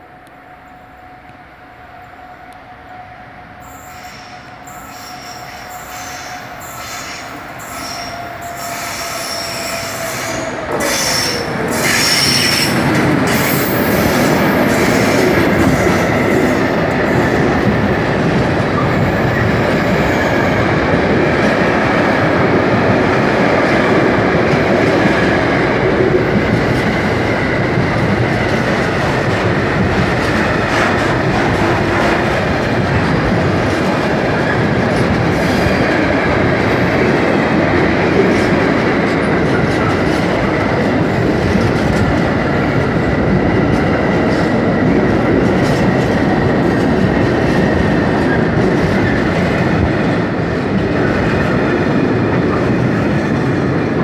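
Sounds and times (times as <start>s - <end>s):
locomotive whine: 0.0s - 23.3s
faint high wheel squeal: 3.6s - 12.8s.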